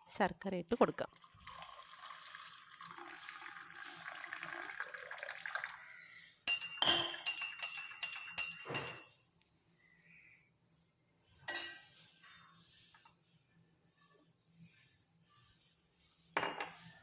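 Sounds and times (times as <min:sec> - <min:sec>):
liquid pouring: 0:01.1 - 0:05.8
dishes clinking: 0:06.4 - 0:09.1, 0:11.4 - 0:12.0, 0:16.4 - 0:16.8.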